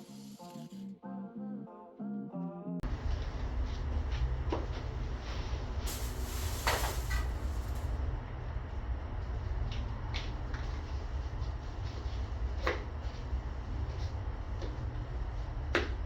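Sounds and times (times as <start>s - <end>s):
low rumble: 2.8s - 16.0s
aerosol spray can hissing: 5.9s - 7.9s.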